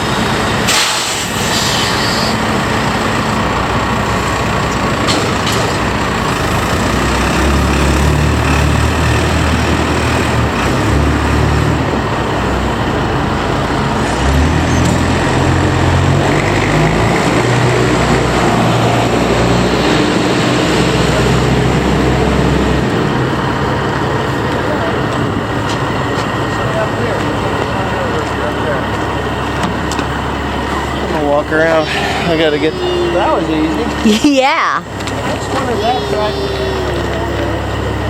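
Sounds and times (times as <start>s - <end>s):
heavy vehicle engine droning: 0.0s - 38.0s.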